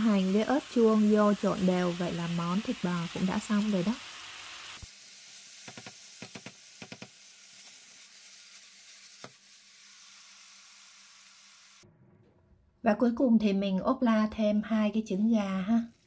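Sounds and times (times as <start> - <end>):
food sizzling in a hot pan: 0.0 - 11.8.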